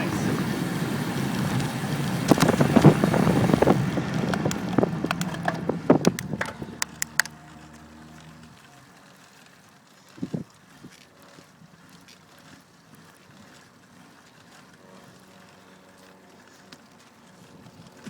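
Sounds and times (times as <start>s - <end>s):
wind and road rush: 0.0s - 8.5s
truck engine humming: 0.0s - 8.8s
bicycle clicks and rattles: 1.4s - 7.7s.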